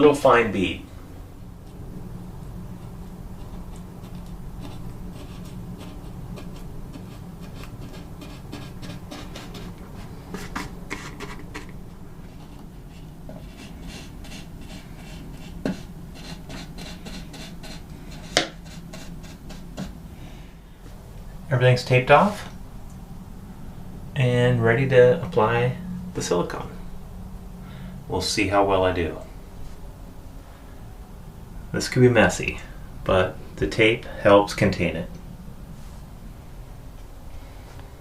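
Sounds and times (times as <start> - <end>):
steady low hum: 0.0 - 38.0
rubbing and scraping on countertop: 2.8 - 20.0.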